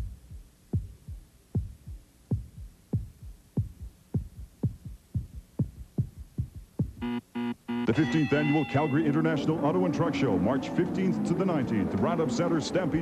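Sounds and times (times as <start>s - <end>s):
heartbeat double thumps: 0.0s - 7.2s.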